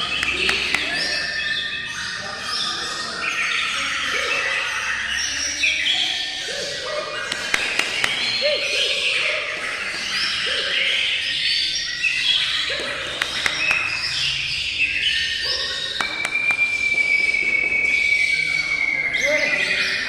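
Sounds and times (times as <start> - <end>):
songbirds singing: 0.0 - 20.0
bird long steady whistle: 11.2 - 20.0
sharp clicks: 13.1 - 14.1.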